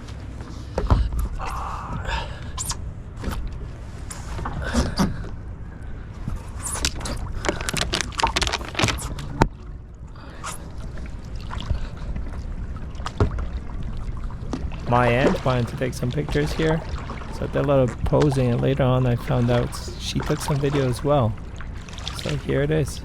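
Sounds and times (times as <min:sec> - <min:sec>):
water splashing and lapping: 0:00.0 - 0:23.0.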